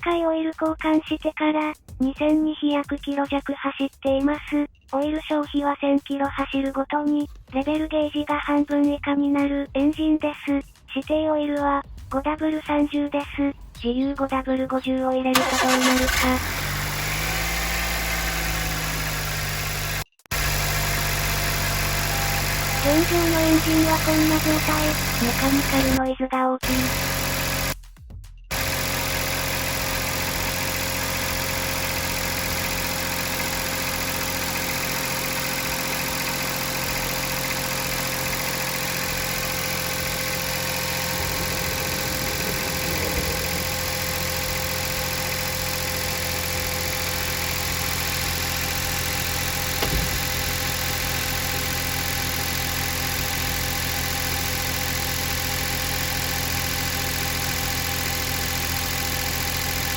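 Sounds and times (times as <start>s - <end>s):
engine idling with mechanical noise: 15.3s - 26.0s, 26.6s - 27.8s, 28.5s - 59.9s.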